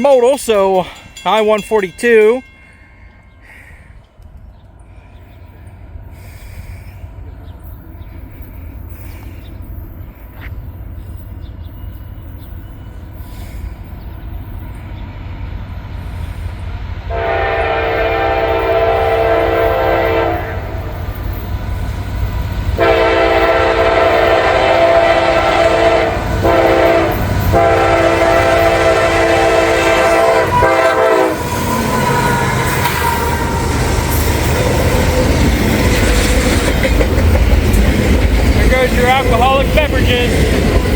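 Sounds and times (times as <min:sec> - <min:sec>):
locomotive engine rumble: 0:03.0 - 0:40.9
train horn blasts: 0:17.1 - 0:21.0, 0:22.8 - 0:34.4
train wheels clattering: 0:20.9 - 0:40.9.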